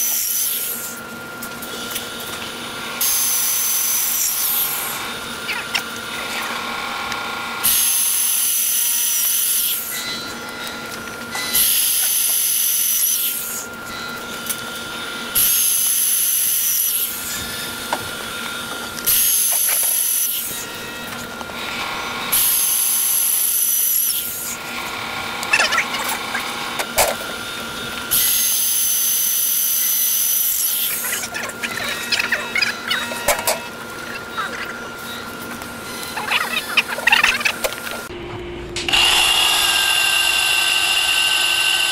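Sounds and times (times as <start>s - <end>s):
power drill grinding tile: 15.4s - 27.4s
low drill hum: 37.8s - 41.9s.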